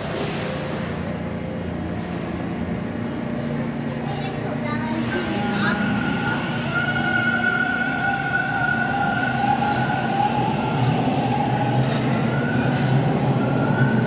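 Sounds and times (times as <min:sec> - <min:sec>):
subway train rumble: 0:00.0 - 0:14.0.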